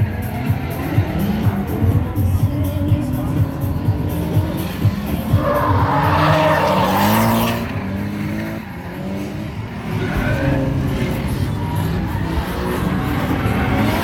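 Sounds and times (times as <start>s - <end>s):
car engine revving hard: 3.5s - 14.0s.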